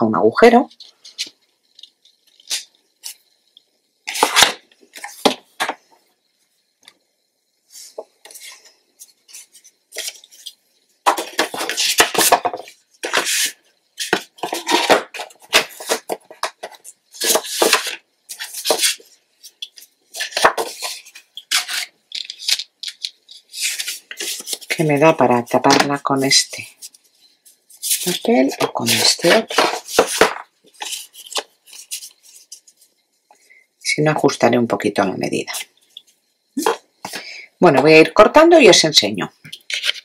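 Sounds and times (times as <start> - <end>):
paper rustling and scraping: 4.0 - 5.8, 7.7 - 32.9, 39.5 - 40.0.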